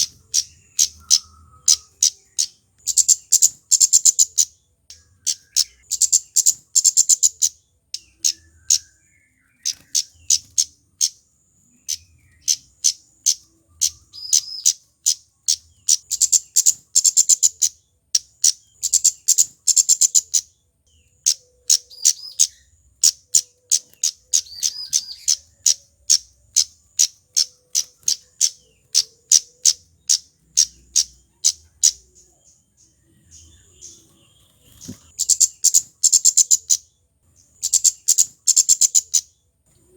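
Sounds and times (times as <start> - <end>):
bird calling with high ticks: 0.0 - 36.9, 37.5 - 39.4.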